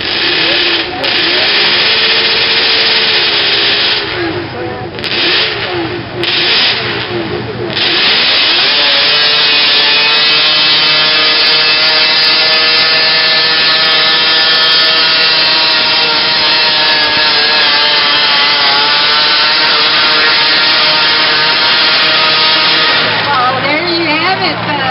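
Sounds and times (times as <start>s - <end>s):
tractor engine at high revs: 0.0s - 24.9s.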